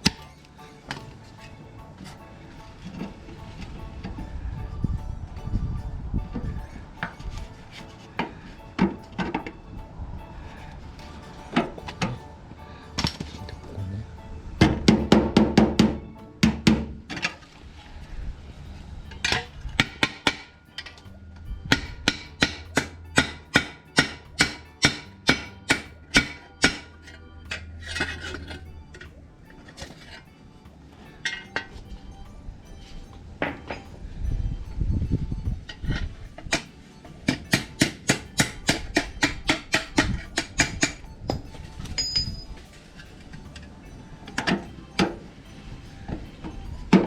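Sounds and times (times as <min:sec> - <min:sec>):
high ringing from metal: 0:00.0 - 0:47.0
hammer striking sheet metal: 0:21.7 - 0:26.9.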